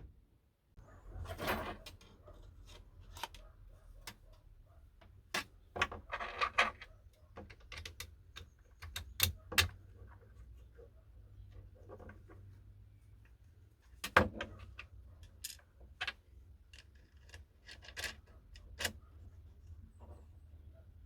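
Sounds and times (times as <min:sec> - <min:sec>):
clicks and taps of parts handled: 0:06.7 - 0:10.2.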